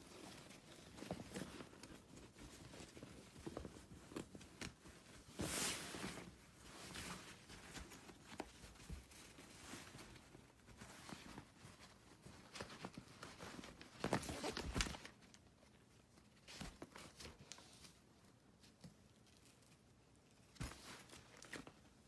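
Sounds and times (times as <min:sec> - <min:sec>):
fabric box rustling: 0:00.0 - 0:15.2.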